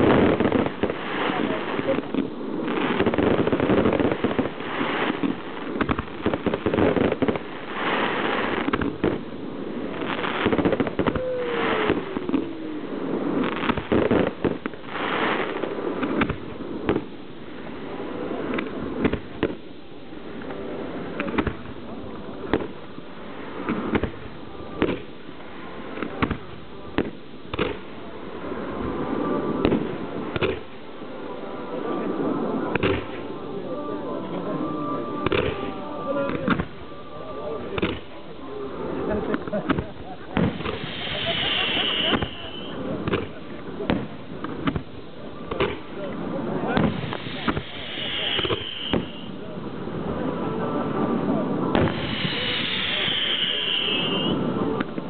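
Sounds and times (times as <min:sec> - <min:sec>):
fireworks bangs and crackling: 0:00.0 - 0:55.0
falling firework whistle: 0:10.0 - 0:14.3, 0:34.4 - 0:37.8, 0:40.3 - 0:42.9, 0:46.7 - 0:49.5, 0:51.7 - 0:54.9.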